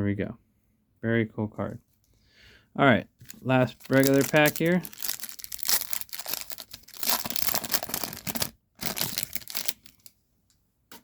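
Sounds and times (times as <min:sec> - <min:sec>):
foil wrapper tearing and crinkling: 0:03.2 - 0:10.1.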